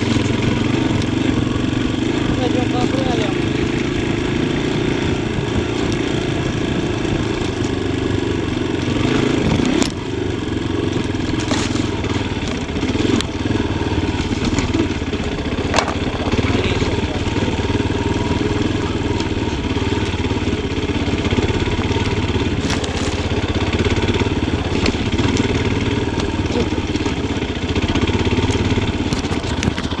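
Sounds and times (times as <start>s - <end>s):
motorcycle engine running: 0.0s - 30.0s
sharp knocks: 15.7s - 16.1s.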